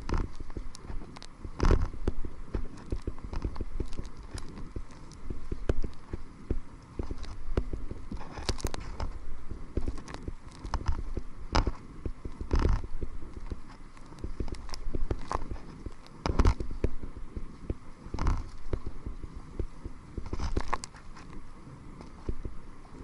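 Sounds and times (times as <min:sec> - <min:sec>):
paddle knocks and clicks: 0:00.0 - 0:23.0
paddle strokes in water: 0:00.0 - 0:23.0
wind rumble on microphone: 0:00.0 - 0:23.0.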